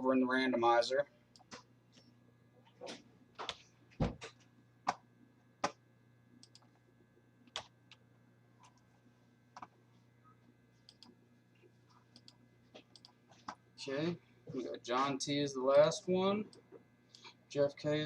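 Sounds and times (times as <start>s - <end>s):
keyboard and mouse clicks: 6.4s - 6.7s, 10.9s - 11.1s, 12.1s - 13.6s.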